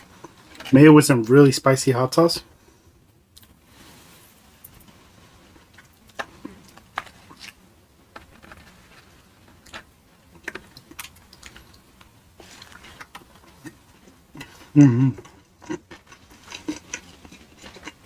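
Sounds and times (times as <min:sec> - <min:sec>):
chewing: 0:10.4 - 0:18.0.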